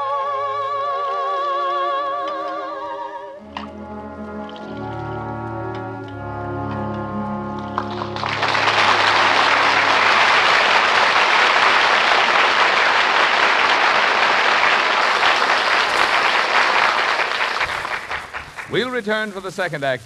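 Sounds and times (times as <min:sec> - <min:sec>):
audience applauding: 0:07.5 - 0:19.3.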